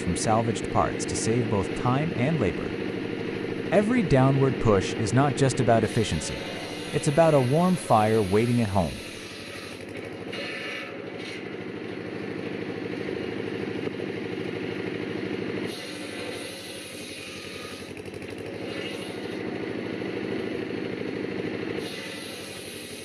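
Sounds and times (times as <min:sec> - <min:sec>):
log splitter engine drone: 0:00.0 - 0:23.0.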